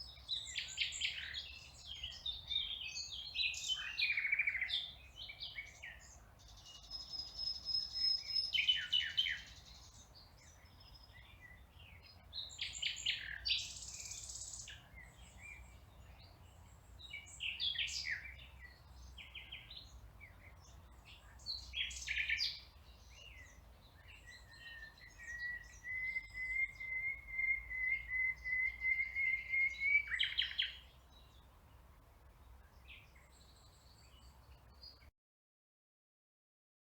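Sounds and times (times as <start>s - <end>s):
songbirds chirping: 0.0s - 35.1s
bird trill: 21.5s - 30.9s.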